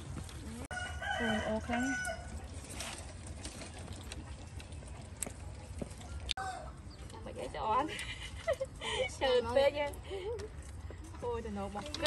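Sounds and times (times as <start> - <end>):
crunchy chicken being chewed: 0.0 - 7.2.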